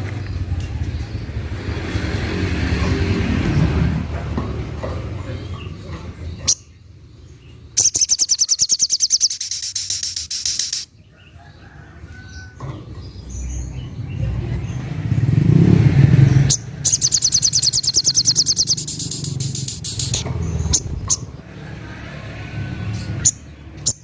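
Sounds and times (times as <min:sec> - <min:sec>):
bird high-pitched trills: 0:07.8 - 0:10.9, 0:16.5 - 0:21.3.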